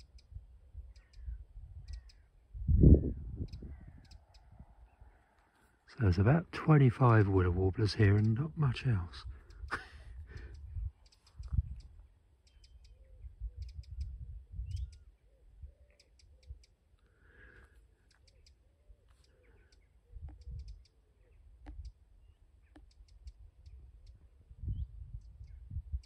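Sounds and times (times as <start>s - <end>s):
small birds ticking: 0.0s - 2.5s, 3.2s - 26.0s
wind rumble on microphone: 0.0s - 5.2s, 9.0s - 12.1s, 12.9s - 15.8s, 20.1s - 20.8s, 23.2s - 26.0s.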